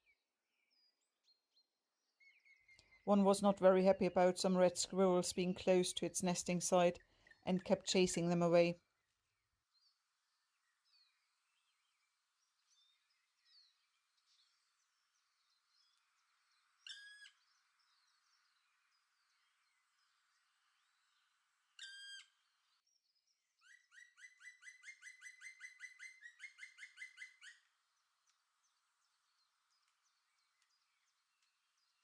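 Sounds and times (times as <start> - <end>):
woodpecker calling: 23.6 - 27.7.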